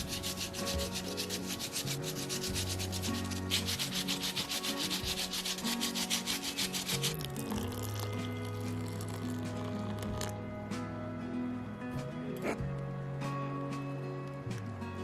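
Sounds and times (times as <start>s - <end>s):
rapid rhythmic scraping: 0.0s - 10.3s
soft background music: 0.0s - 15.0s.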